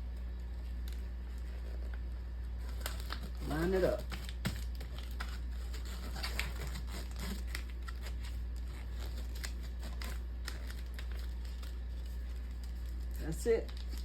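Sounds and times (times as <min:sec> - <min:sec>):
steady low hum: 0:00.0 - 0:14.0
paper crinkling: 0:00.2 - 0:14.0.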